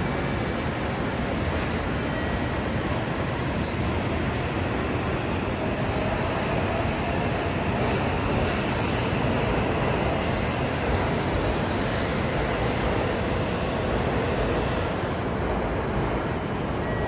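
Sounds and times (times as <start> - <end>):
train rushing noise: 0.0 - 17.0.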